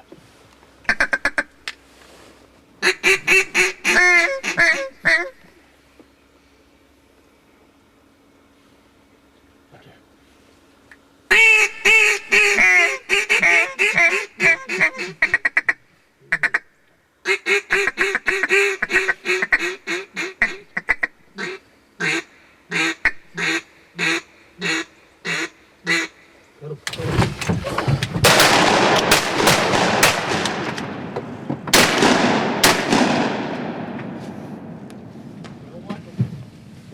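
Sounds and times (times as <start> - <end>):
duck call quacks: 0.8 - 1.6, 2.8 - 5.5, 11.3 - 26.2.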